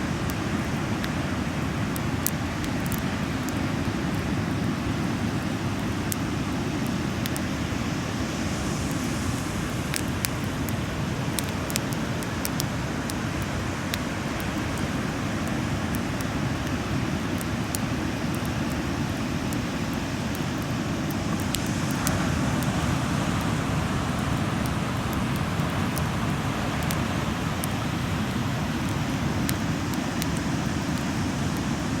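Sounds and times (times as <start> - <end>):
campfire crackling: 0.0 - 32.0.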